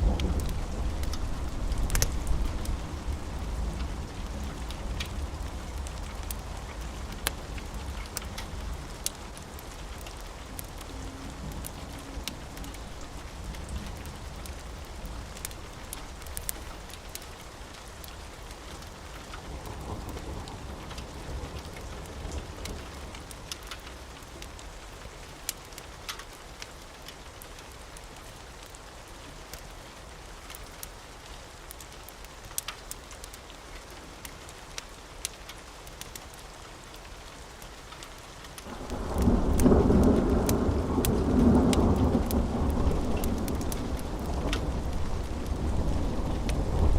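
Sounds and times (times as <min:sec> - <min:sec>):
thunder rumbling: 0:00.0 - 0:17.0, 0:38.7 - 0:46.9
steady rain: 0:00.0 - 0:46.9.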